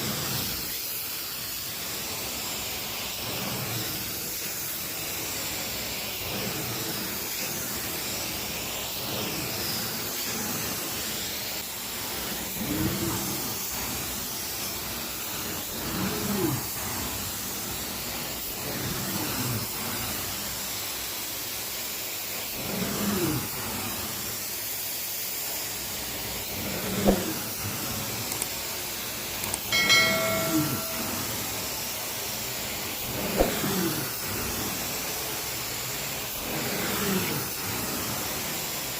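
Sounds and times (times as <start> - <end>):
carpet cleaning machine suction: 0.0 - 38.9
brief high tone: 29.7 - 31.4.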